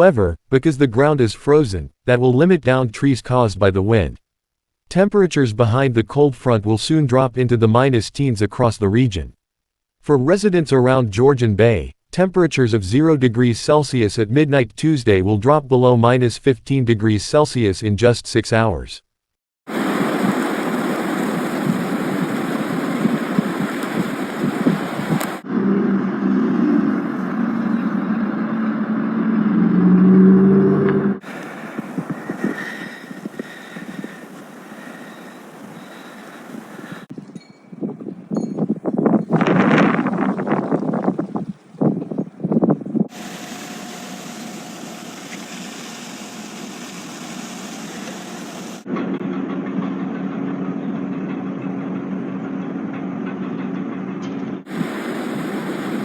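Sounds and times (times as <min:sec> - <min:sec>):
steady rushing noise: 0:19.7 - 0:25.6, 0:31.2 - 0:37.1, 0:54.7 - 0:56.0
vehicle engine humming: 0:19.7 - 0:37.1.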